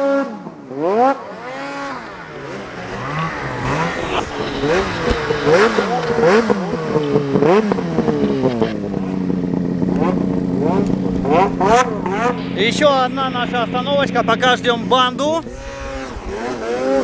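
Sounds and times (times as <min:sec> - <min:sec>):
snowmobile engines revving: 0:00.0 - 0:17.0.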